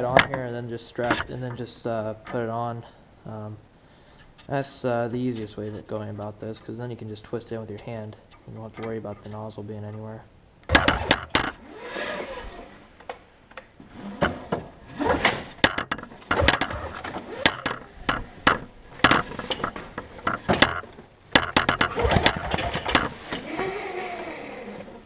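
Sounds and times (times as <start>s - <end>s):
engine being cranked over: 10.7s - 12.8s, 14.0s - 25.0s.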